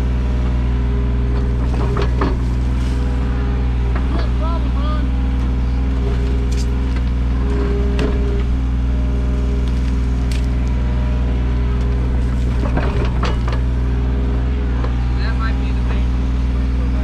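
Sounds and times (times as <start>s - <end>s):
excavator diesel engine running: 0.0s - 17.0s
excavator bucket knocks and clatters: 1.4s - 3.2s, 11.9s - 13.8s.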